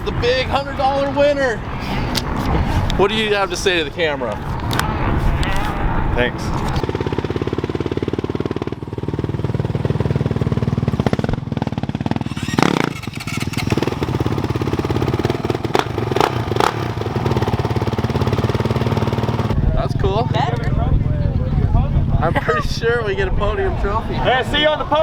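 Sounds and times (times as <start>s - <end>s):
off-road motorcycle engine running: 6.2s - 22.2s.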